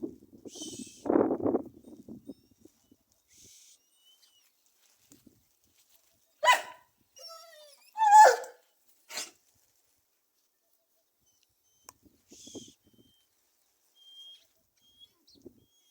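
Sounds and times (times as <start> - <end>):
dog barking: 6.4 - 6.8, 8.0 - 9.3
dog whining: 6.4 - 9.3.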